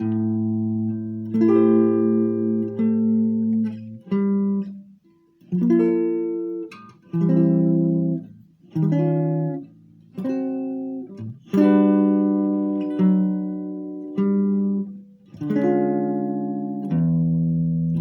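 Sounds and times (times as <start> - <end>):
solo guitar strumming chords: 0.0 - 18.0.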